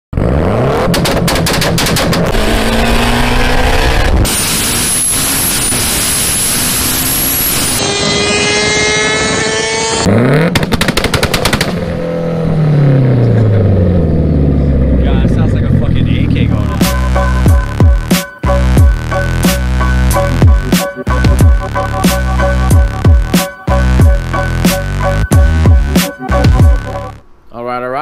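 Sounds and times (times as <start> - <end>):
car engine revving: 0.2 - 10.8, 11.7 - 27.2
rapid exhaust pops: 0.8 - 2.7
loud rushing noise: 1.2 - 10.1
high steady whine: 2.3 - 10.1.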